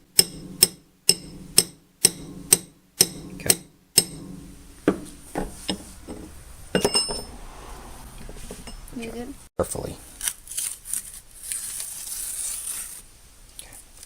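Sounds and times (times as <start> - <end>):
hammer striking metal: 0.0 - 7.4
light uneven knocks: 4.2 - 7.3.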